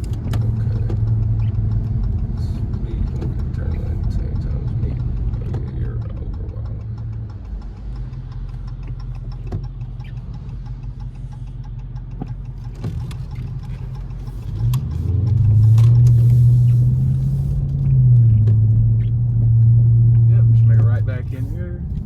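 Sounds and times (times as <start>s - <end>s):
car engine revving from cabin: 12.7s - 22.0s.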